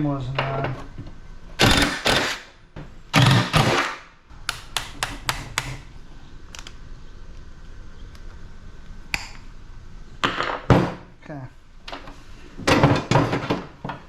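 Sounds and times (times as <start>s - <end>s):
knocks and clanks on metal: 12.6s - 14.0s.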